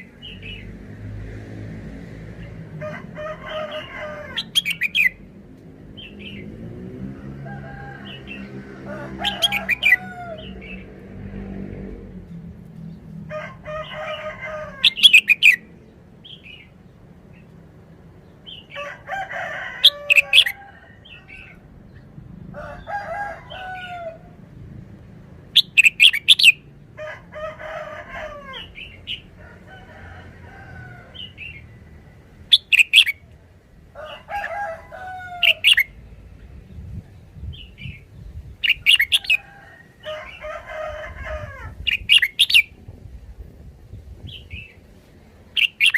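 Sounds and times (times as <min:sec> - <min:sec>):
bird singing warbled phrases: 0:00.0 - 0:00.7, 0:03.6 - 0:05.2, 0:06.0 - 0:06.5, 0:14.8 - 0:17.5, 0:25.6 - 0:26.8, 0:32.4 - 0:33.5, 0:35.4 - 0:39.4, 0:41.7 - 0:42.9, 0:45.5 - 0:45.9.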